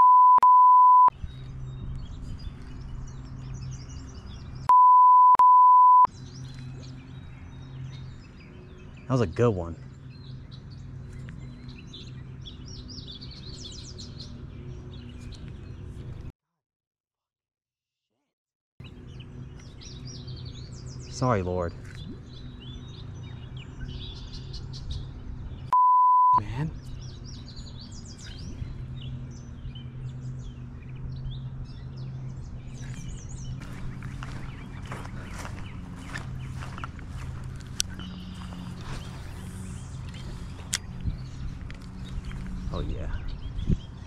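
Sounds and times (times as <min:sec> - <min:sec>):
songbirds chirping and singing: 0:01.2 - 0:04.7, 0:06.1 - 0:16.3, 0:18.8 - 0:25.7, 0:26.4 - 0:44.0
steady low hum: 0:26.4 - 0:44.0
scratchy rustling: 0:33.6 - 0:40.7.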